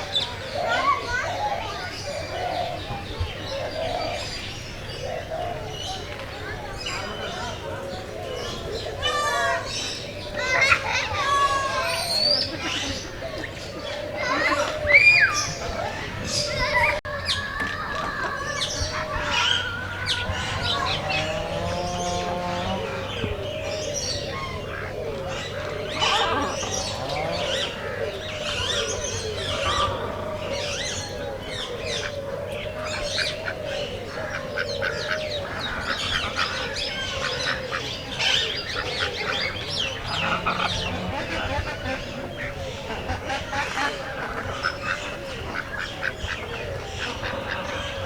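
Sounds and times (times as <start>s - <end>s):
birds chirping: 0.0s - 48.0s
low bird call: 13.7s - 48.0s
steady low hum: 19.2s - 33.1s.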